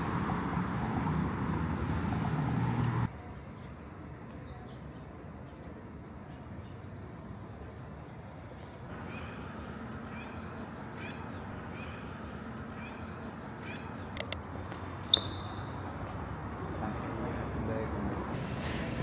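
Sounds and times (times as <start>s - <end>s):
outdoor background noise: 0.0s - 19.0s
bird chirping: 6.3s - 7.3s, 9.0s - 14.4s, 15.1s - 15.8s
sharp clicks: 14.2s - 14.4s.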